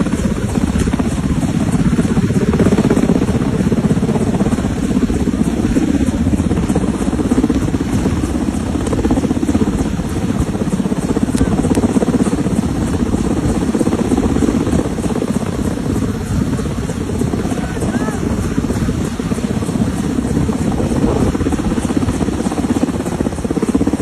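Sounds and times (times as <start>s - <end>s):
engine with pulsing beat: 0.0s - 24.0s.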